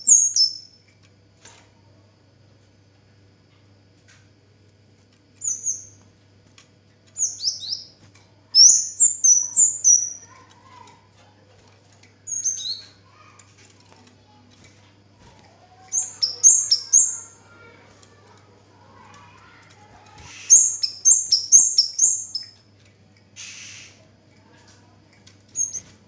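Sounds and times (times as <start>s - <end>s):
bird chirping: 0.0s - 0.8s, 7.2s - 8.0s, 8.6s - 10.4s, 12.3s - 13.0s, 15.7s - 17.5s, 20.3s - 22.6s, 25.5s - 25.9s
faint low hum: 0.0s - 26.0s.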